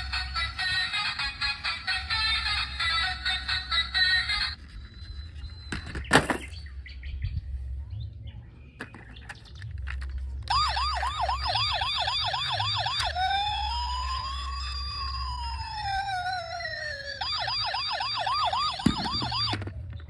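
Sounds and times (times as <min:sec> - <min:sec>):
toy electronic siren: 0:00.0 - 0:06.0, 0:10.5 - 0:19.9.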